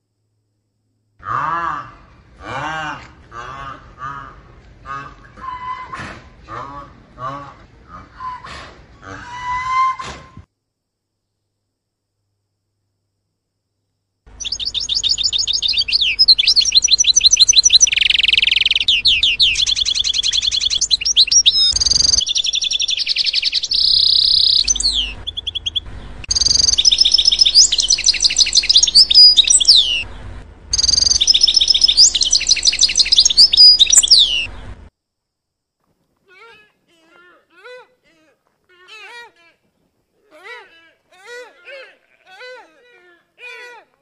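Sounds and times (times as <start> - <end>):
bird chirps and trills: 14.3 - 34.8.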